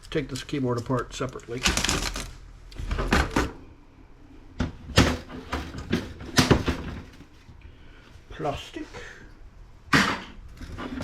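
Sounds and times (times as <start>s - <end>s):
plastic parts clicking and knocking: 0.0s - 3.6s.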